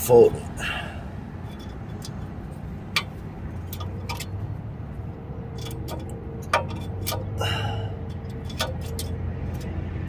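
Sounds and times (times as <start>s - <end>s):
metallic clicks and taps: 2.9s - 4.4s, 5.5s - 7.4s, 8.0s - 9.8s.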